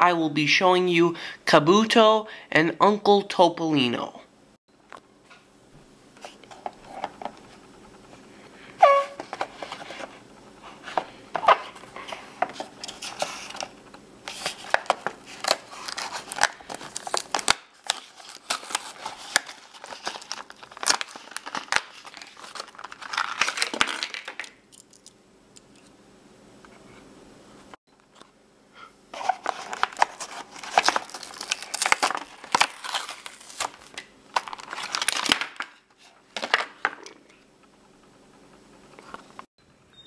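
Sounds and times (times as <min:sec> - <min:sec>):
brief squeak: 0:08.8 - 0:09.2
packaging tearing and crinkling: 0:14.3 - 0:24.6, 0:29.2 - 0:35.8.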